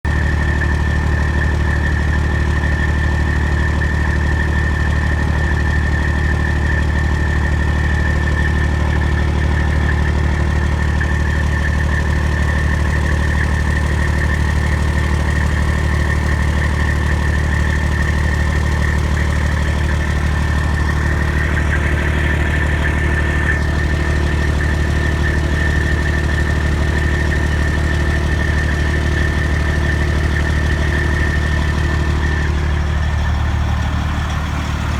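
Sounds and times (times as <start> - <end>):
diesel engine idling: 0.1 - 34.9
rapid metallic clicking from exhaust: 10.7 - 34.9.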